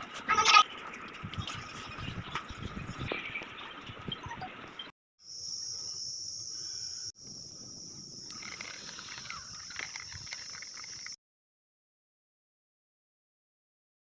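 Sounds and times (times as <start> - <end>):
insects chirring: 5.2 - 11.2.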